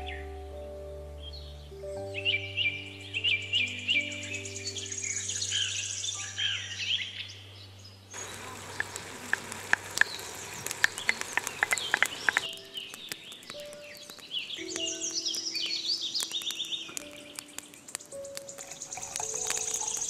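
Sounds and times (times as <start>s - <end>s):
birds chirping: 1.2s - 20.0s
vegetables sizzling and crackling: 8.2s - 20.0s.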